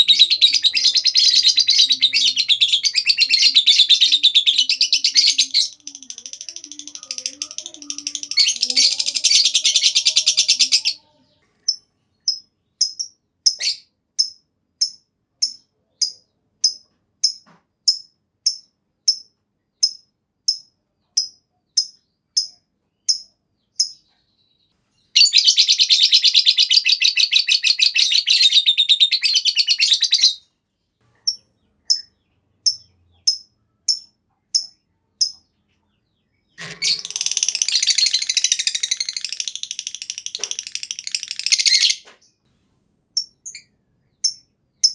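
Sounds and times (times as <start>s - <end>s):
bird chattering trill: 0.0s - 11.1s, 36.5s - 42.1s, 43.2s - 44.9s
bird shrill chirps: 36.5s - 42.1s.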